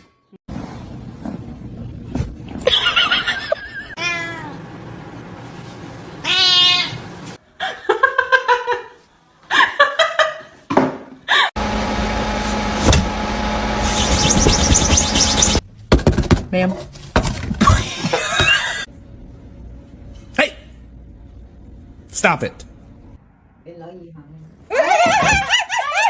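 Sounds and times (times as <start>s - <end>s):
cats meowing: 4.0s - 4.6s, 6.2s - 7.0s.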